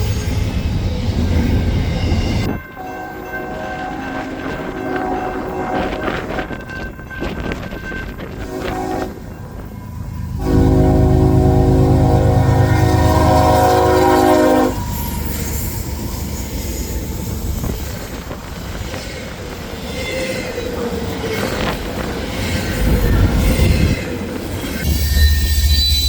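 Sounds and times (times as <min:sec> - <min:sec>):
train rumbling on rails: 0:00.0 - 0:26.0
train horn chord: 0:02.7 - 0:06.5, 0:08.3 - 0:09.4, 0:10.3 - 0:15.0
faint wheel squeal: 0:24.7 - 0:26.0.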